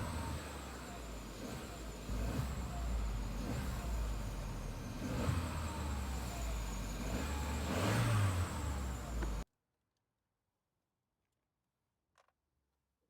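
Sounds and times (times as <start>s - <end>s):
car engine rumbling: 0.0s - 9.4s.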